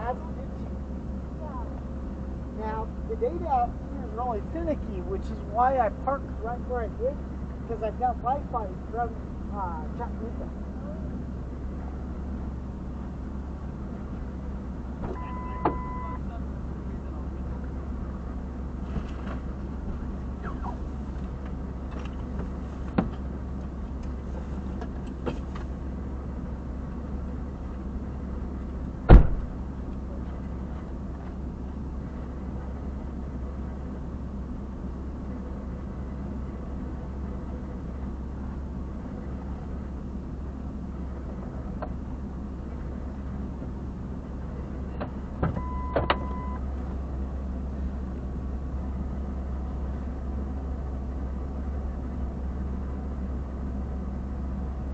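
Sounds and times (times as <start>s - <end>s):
car engine idling: 0.0s - 54.9s
short electronic beep: 15.2s - 16.2s, 45.6s - 46.6s.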